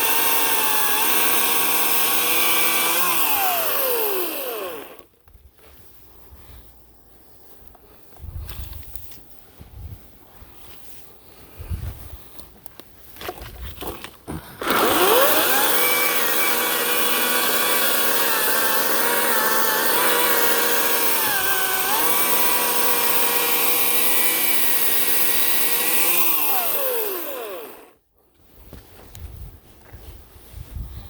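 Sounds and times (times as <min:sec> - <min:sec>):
electric chainsaw cutting wood: 0:00.0 - 0:05.1, 0:14.3 - 0:28.0.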